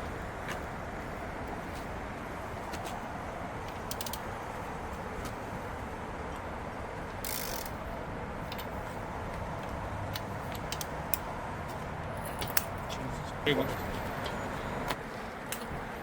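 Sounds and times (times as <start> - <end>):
steady background noise: 0.0 - 16.0
hand ratchet clicking: 3.7 - 4.2, 7.2 - 7.8, 10.1 - 11.3.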